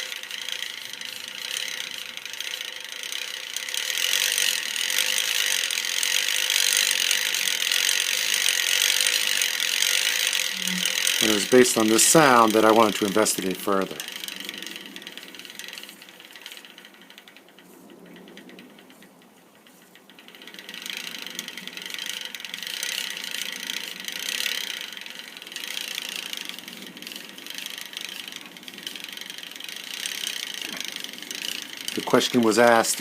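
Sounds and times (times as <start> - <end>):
bicycle chain clacking: 0.0 - 33.0.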